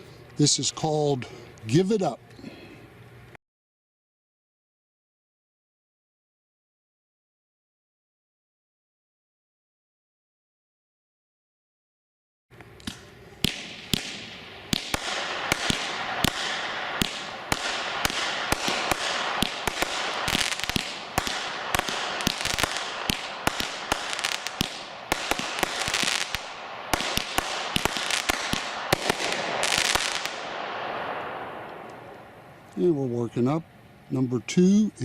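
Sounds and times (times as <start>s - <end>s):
fireworks bangs: 12.8s - 32.4s
fireworks hiss: 12.8s - 32.5s.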